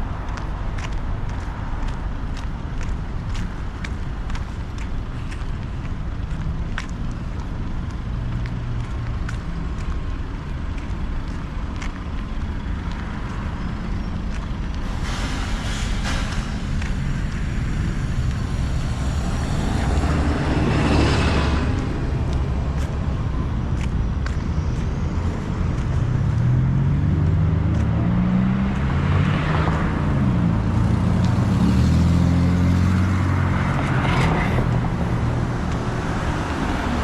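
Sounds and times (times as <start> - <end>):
low rumble of traffic engines: 0.0 - 37.0
vehicles swishing past: 0.0 - 37.0
faint footsteps: 0.2 - 28.0.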